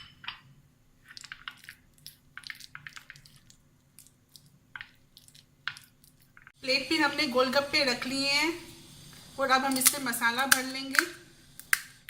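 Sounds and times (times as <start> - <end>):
wet squishes and clicks: 1.0 - 6.6
spoon stirring sticky filling: 1.0 - 11.8.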